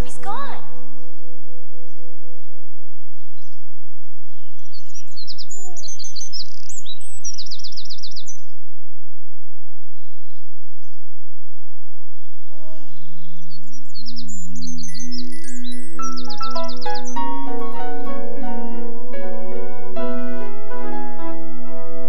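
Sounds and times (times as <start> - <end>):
small birds chirping and trilling: 1.9 - 8.6, 12.1 - 17.8
held musical tone: 15.3 - 22.0.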